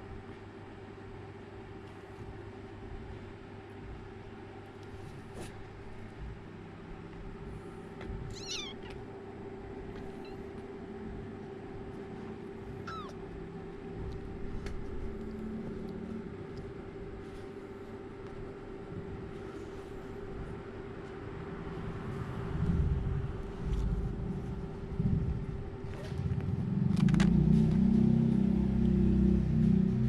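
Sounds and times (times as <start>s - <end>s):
steady low hum: 0.0s - 30.0s
kittens mewing: 8.2s - 9.1s, 12.7s - 13.3s.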